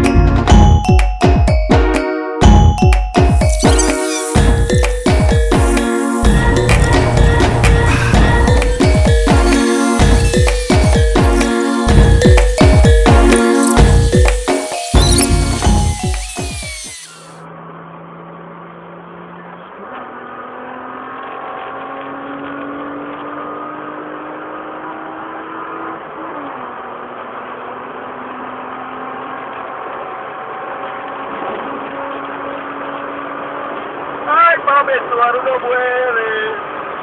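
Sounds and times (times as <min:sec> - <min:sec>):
road noise: 0:04.4 - 0:09.2, 0:16.9 - 0:23.8
car engine accelerating: 0:05.7 - 0:10.4, 0:16.9 - 0:34.3.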